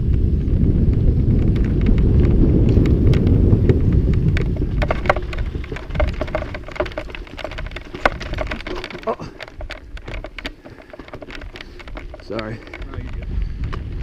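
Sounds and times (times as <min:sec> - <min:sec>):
bike clattering over rough trail: 0:00.0 - 0:14.0
wind buffeting microphone: 0:00.0 - 0:14.0
sharp clicks and rattles: 0:00.1 - 0:14.0.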